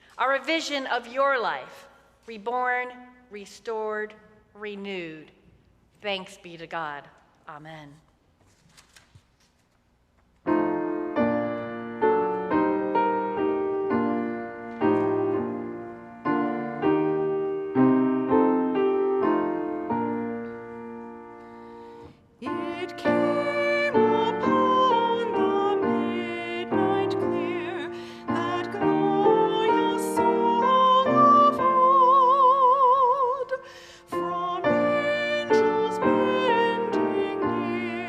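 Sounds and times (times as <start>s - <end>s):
piano playing hymn chords: 10.5s - 33.4s, 34.1s - 38.0s.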